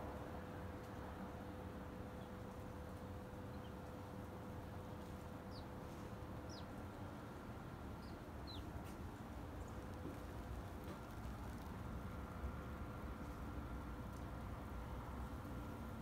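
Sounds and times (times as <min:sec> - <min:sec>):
low background rumble: 0:00.0 - 0:16.0
faint high bird chirps: 0:06.5 - 0:06.7.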